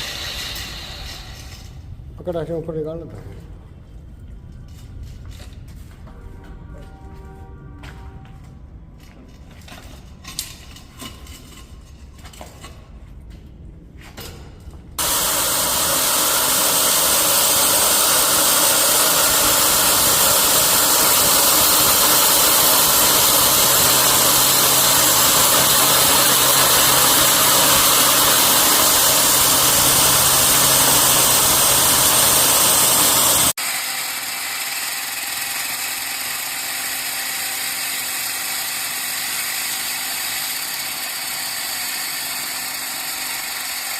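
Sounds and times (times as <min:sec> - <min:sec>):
concrete cutting power tool: 0:00.0 - 0:01.8, 0:15.0 - 0:43.9.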